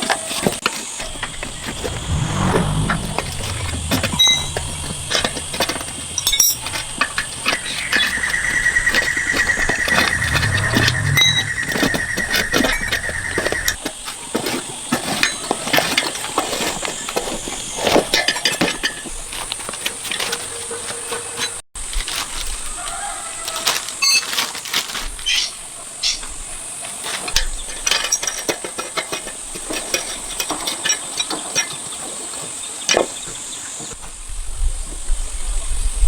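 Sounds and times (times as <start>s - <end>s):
engine running: 0.7s - 13.8s
high-pitched squeal: 1.0s - 13.8s.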